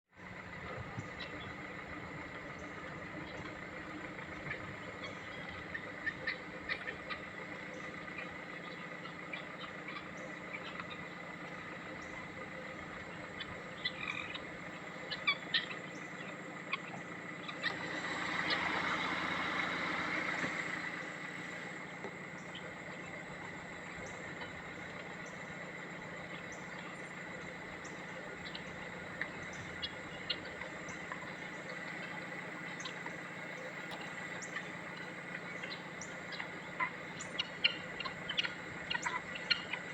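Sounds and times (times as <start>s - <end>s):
guinea fowl calling: 0.2s - 39.9s.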